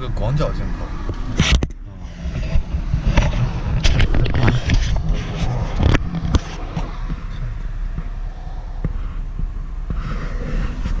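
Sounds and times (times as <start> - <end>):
car engine idling: 0.0 - 11.0
knocks and clicks: 1.1 - 8.2.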